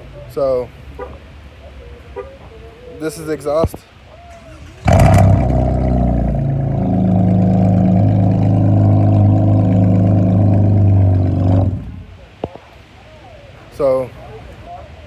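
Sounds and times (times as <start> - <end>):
loud car exhaust idling: 4.6 - 12.3.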